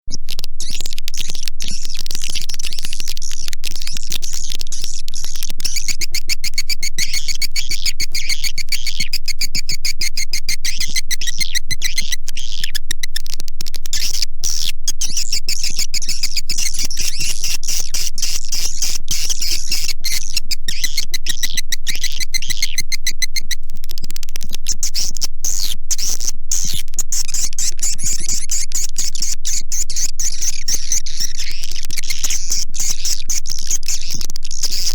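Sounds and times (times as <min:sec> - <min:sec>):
swiftlets twittering: 0:13.9 - 0:23.6.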